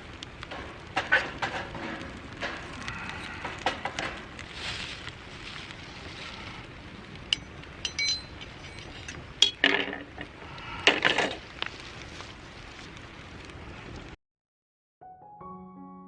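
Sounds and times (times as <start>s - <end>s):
dishes clinking and clattering: 0.5s - 2.8s, 7.4s - 10.3s.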